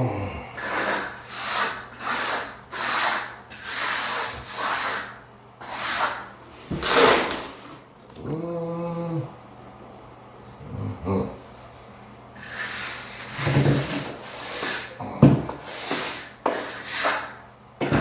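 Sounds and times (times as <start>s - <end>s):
person humming: 0.0s - 0.6s, 8.2s - 9.4s, 10.6s - 11.4s
hand float scraping sand mortar: 0.6s - 7.5s, 15.6s - 17.3s.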